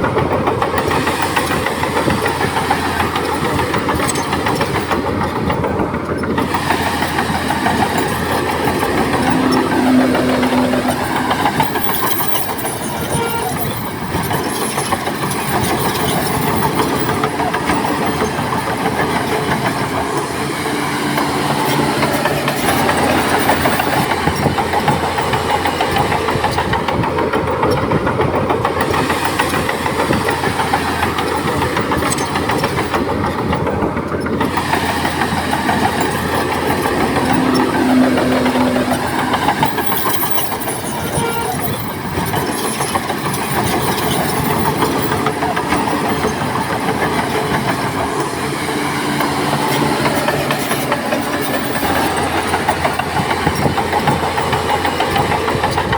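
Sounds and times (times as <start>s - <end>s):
heavy diesel engines working: 0.0s - 55.9s.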